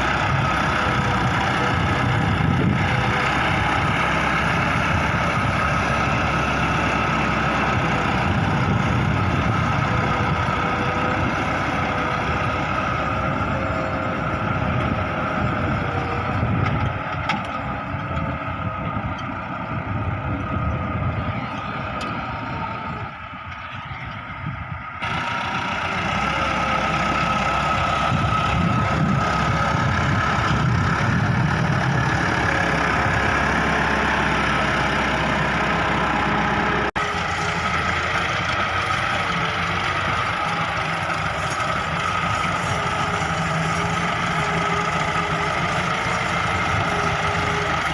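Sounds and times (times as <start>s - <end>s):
tractor diesel engine under load: 0.0s - 47.9s.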